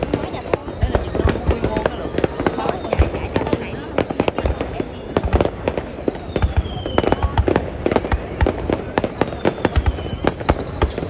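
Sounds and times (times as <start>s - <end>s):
fireworks bangs and crackling: 0.0s - 11.0s
firework shell whistle: 6.1s - 11.0s.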